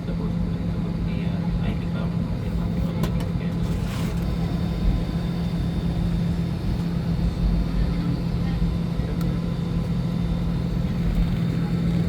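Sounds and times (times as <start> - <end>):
aircraft cabin drone: 0.0 - 12.0
high steady whine: 2.4 - 12.0.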